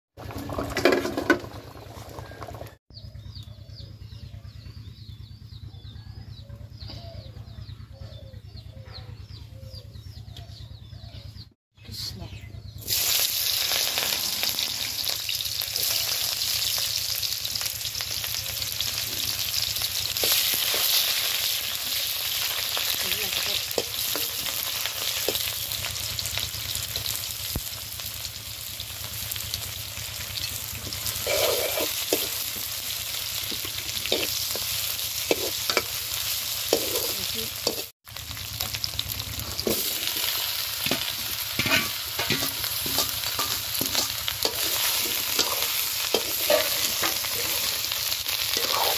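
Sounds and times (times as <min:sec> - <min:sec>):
vegetable chunks tumbling into pan: 0:00.2 - 0:02.8, 0:12.9 - 0:48.9
food sizzling in hot oil: 0:12.8 - 0:48.9
metal ladle scraping a pan: 0:30.5 - 0:32.5, 0:33.6 - 0:37.9, 0:39.5 - 0:48.9.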